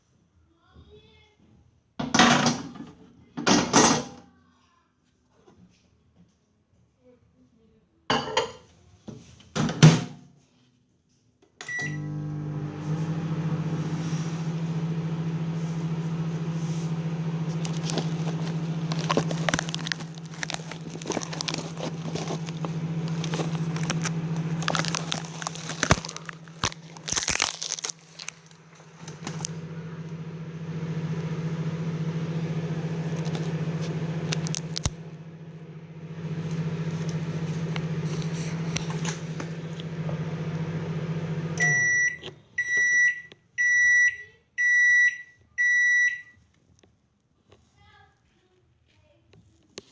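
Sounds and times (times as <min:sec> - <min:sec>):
microwave oven beep: 0:11.6 - 0:16.1, 0:39.6 - 0:46.4
microwave humming: 0:11.6 - 0:46.2
clicks and clatter: 0:17.6 - 0:29.6, 0:33.1 - 0:35.0.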